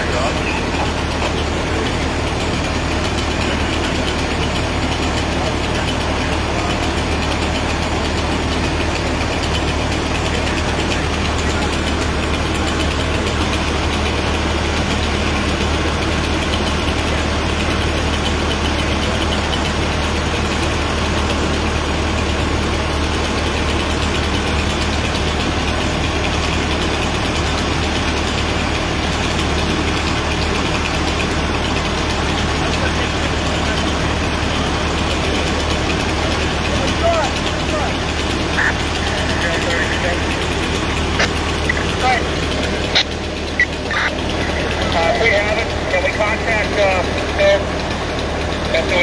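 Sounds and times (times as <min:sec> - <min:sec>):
outdoor background noise: 0:00.0 - 0:49.0
vehicle engine idling: 0:00.0 - 0:49.0.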